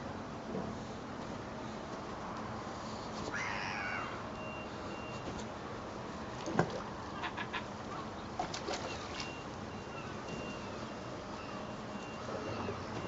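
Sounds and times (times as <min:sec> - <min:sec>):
gulls calling: 0:03.3 - 0:04.8, 0:07.0 - 0:13.0
vehicle reversing beeper: 0:04.4 - 0:05.3, 0:09.2 - 0:13.0.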